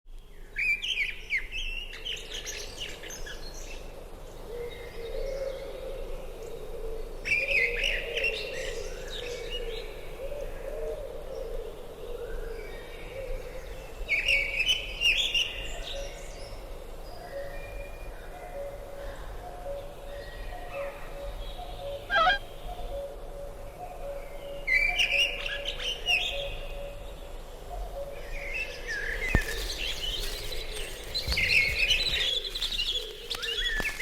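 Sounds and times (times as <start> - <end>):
birds chirping and singing: 21.9 - 22.5, 29.2 - 34.0.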